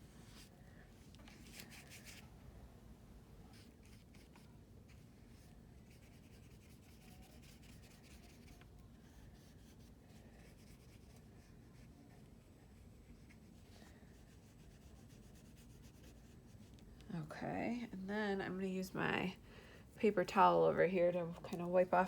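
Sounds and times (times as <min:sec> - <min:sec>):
brush scrubbing on paper: 0:12.8 - 0:16.8.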